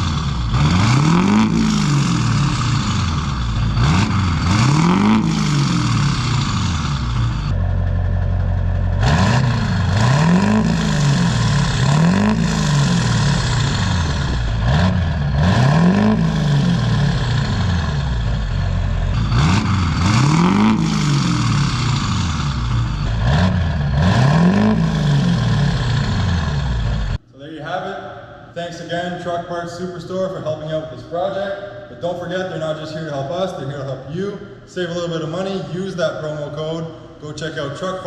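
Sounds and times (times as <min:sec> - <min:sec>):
diesel engine revving from idle: 0:00.0 - 0:27.2.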